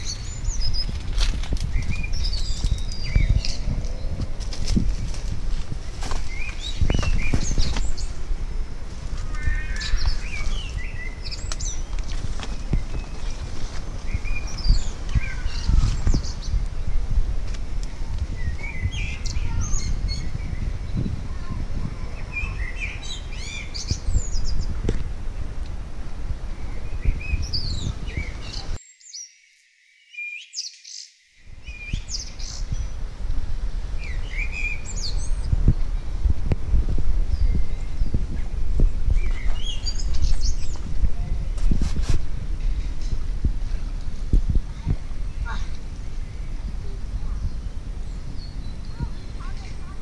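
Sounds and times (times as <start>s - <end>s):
low rumble: 0.0s - 23.1s
small birds chirping: 0.0s - 33.1s, 33.9s - 36.3s, 37.2s - 41.8s, 42.6s - 50.0s.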